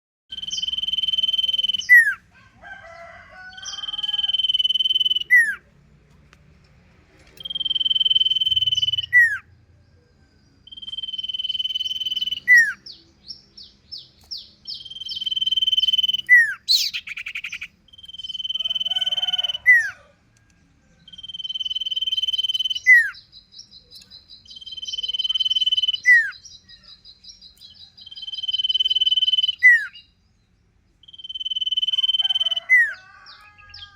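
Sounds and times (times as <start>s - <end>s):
bird chirps: 0.3s - 2.2s, 2.8s - 5.7s, 7.3s - 33.9s
bird whistling song: 0.3s - 2.2s, 3.7s - 5.6s, 7.4s - 9.4s, 10.6s - 20.0s, 21.0s - 30.2s, 31.0s - 33.9s
harsh bird call: 0.3s - 2.2s, 2.8s - 5.6s, 7.4s - 9.6s, 10.7s - 13.0s, 13.9s - 20.1s, 21.0s - 23.4s, 24.5s - 30.1s, 31.0s - 33.9s
rapid high bird trill: 3.6s - 5.6s, 7.4s - 9.4s, 10.7s - 12.8s, 14.6s - 20.0s, 21.1s - 23.3s, 24.5s - 27.0s, 28.1s - 30.0s, 31.0s - 33.9s.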